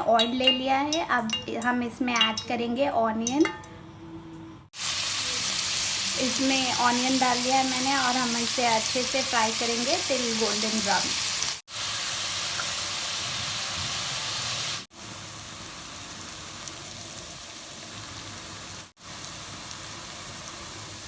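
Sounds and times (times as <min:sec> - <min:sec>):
onions sizzling in frying pan: 0:04.8 - 0:21.0.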